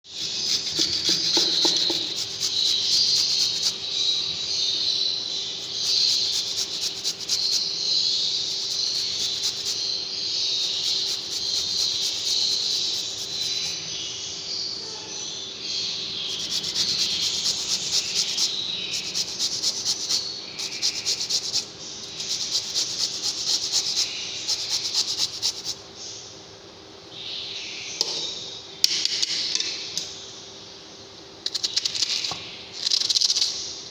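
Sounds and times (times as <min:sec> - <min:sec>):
pet birds chirping: 0:00.1 - 0:26.3
steady low hum: 0:00.1 - 0:28.9.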